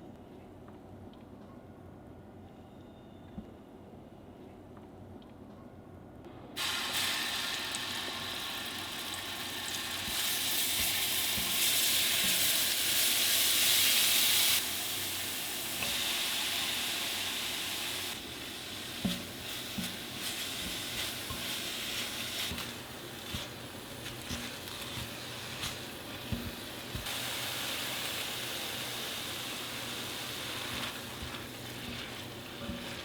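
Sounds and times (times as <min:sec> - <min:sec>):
food sizzling in frying pan: 0:06.6 - 0:33.0.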